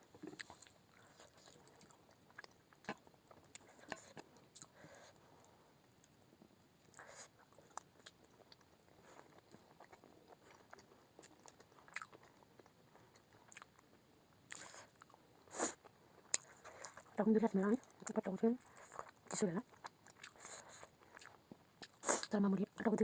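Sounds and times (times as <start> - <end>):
person chewing food: 0.1 - 6.1, 6.8 - 17.2, 17.8 - 22.3.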